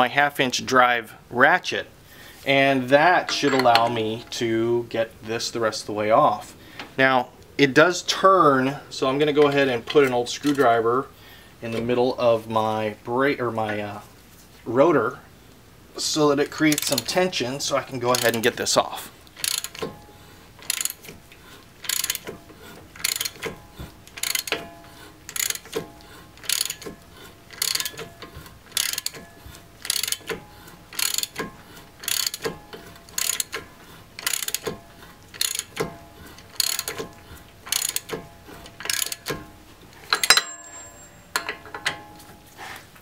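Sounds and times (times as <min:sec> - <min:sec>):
ratchet clicking: 0:16.7 - 0:17.1, 0:19.4 - 0:20.0, 0:20.6 - 0:21.1, 0:21.8 - 0:23.5, 0:24.1 - 0:24.7, 0:25.3 - 0:39.4.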